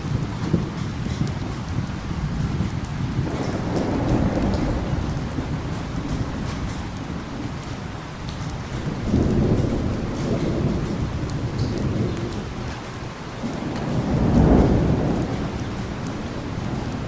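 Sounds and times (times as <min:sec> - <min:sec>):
heavy rain: 0:00.0 - 0:17.0
low thunder rolling: 0:00.0 - 0:17.0.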